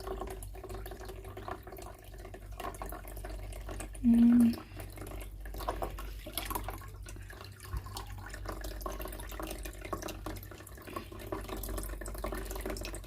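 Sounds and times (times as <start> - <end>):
water trickling into plastic basin: 0.0 - 13.0.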